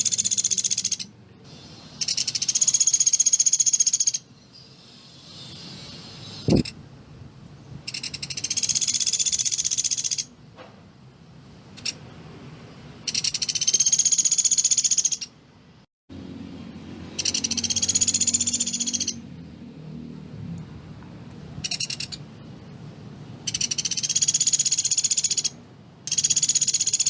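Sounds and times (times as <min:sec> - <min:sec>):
woodpecker trilling: 0:00.0 - 0:01.1, 0:02.0 - 0:04.3, 0:07.9 - 0:10.3, 0:13.1 - 0:15.4, 0:17.2 - 0:19.2, 0:21.6 - 0:22.2, 0:23.5 - 0:27.0.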